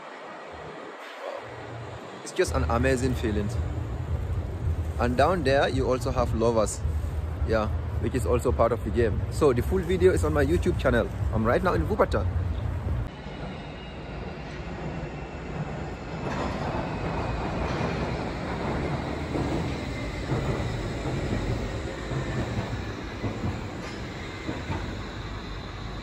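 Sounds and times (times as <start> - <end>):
suspension railway car rumbling: 0.0 - 26.0.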